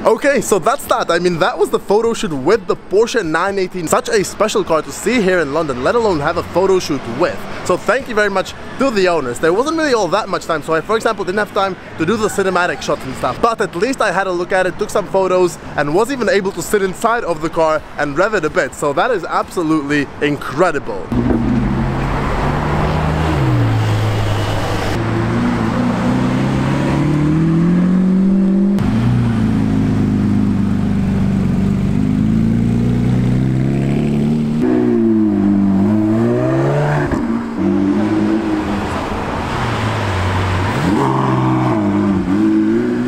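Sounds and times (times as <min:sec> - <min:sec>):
sports car engines accelerating: 0:21.1 - 0:43.0.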